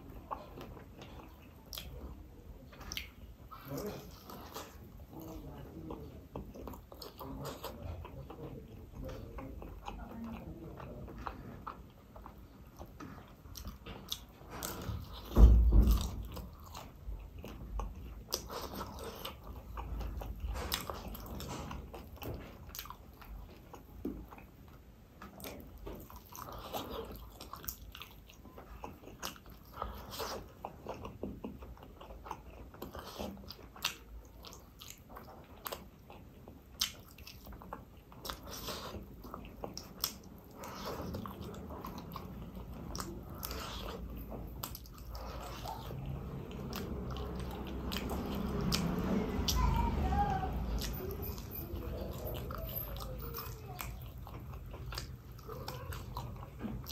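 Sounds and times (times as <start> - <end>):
person biting and chewing: 12.8 - 24.5, 25.2 - 49.5.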